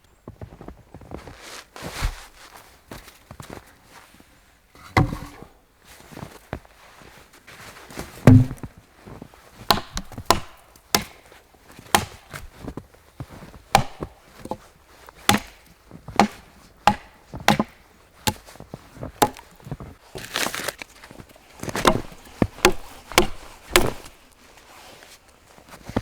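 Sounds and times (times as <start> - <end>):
wood being chopped: 4.9 - 5.4, 8.3 - 8.7, 9.7 - 11.3, 11.9 - 12.4, 13.7 - 14.6, 15.2 - 18.5, 19.2 - 19.6, 21.6 - 24.2.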